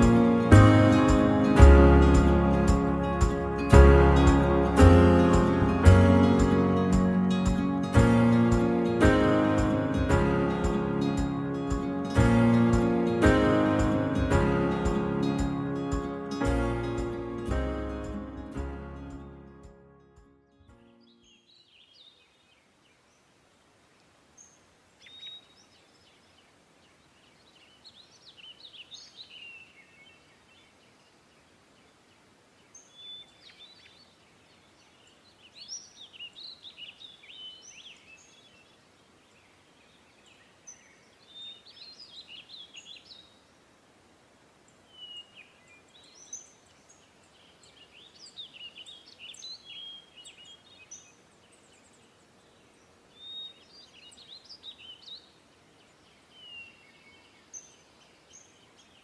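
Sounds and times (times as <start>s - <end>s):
faint outdoor hiss: 0.0s - 59.0s
songbirds chirping and trilling: 20.8s - 23.4s, 24.3s - 43.5s, 44.7s - 59.0s.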